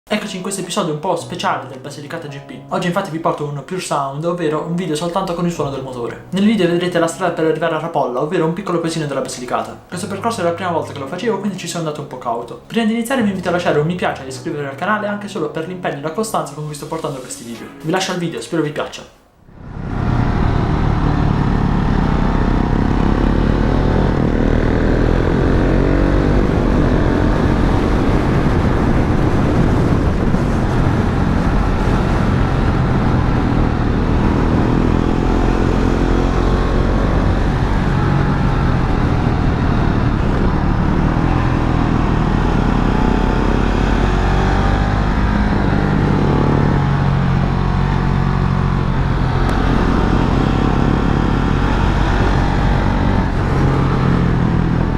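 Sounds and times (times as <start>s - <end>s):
motorcycle engine revving: 19.5s - 54.9s.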